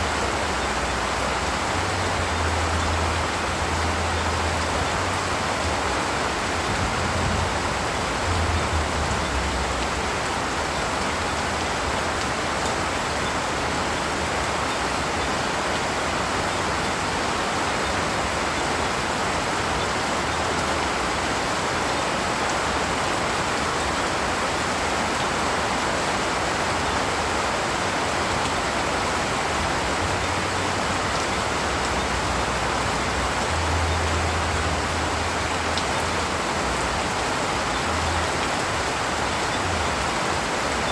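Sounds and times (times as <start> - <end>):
steady rain in a forest: 0.0 - 40.9
low rumbling: 1.9 - 11.2.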